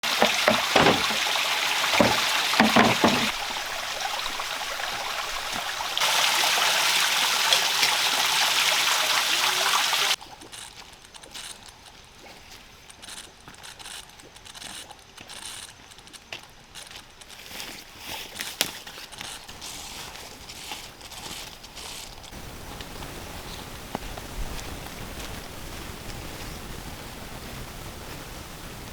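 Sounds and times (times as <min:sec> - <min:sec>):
knocks: 0:00.0 - 0:03.4
rushing water: 0:00.0 - 0:10.4.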